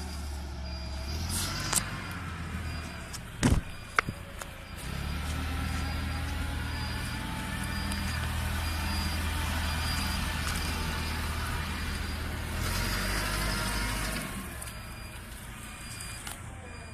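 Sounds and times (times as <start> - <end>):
forklift engine humming: 0.0 - 16.9.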